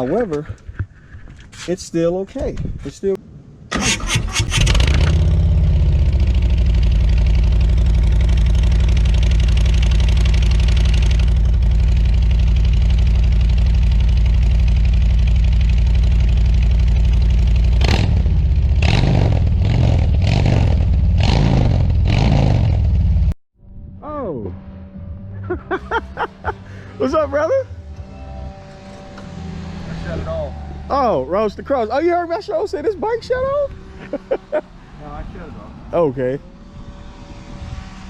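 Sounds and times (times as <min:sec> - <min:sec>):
motorcycle engine revving: 0:03.7 - 0:23.4, 0:24.3 - 0:38.0
motorcycle engine idling: 0:05.2 - 0:18.8.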